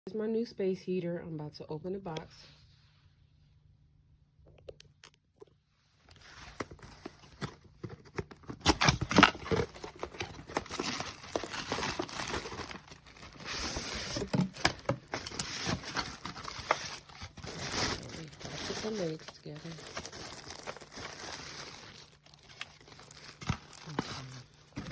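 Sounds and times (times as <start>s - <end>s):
packaging crinkling and tearing: 6.0s - 24.9s.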